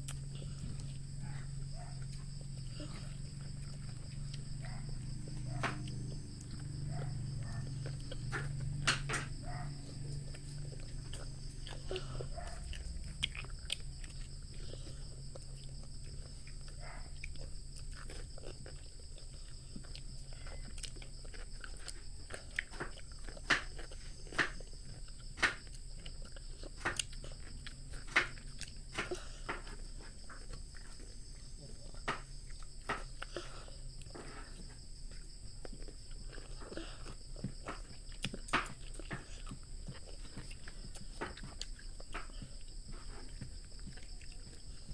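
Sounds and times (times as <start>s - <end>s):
child chewing cucumber: 0.0s - 44.9s.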